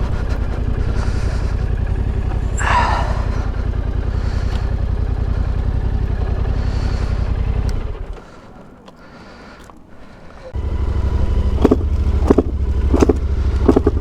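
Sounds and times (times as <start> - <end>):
motorcycle engine running: 0.0 - 8.6, 10.5 - 14.0.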